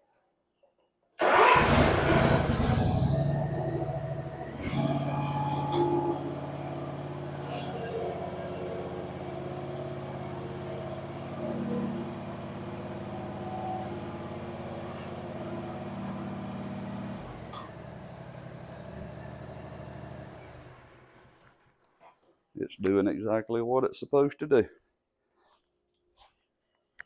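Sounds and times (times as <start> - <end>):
mower engine running: 1.2 - 21.3.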